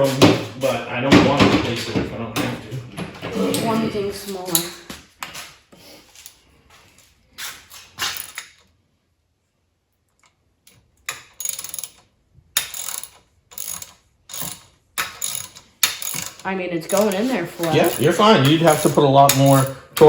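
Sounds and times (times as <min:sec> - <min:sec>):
ratchet wrench clicking: 0:11.1 - 0:19.8.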